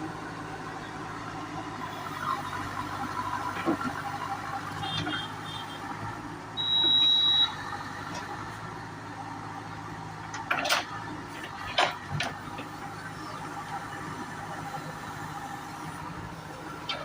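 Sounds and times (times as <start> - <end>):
diesel engine running: 0.0 - 17.0
reversing beep: 6.6 - 7.7.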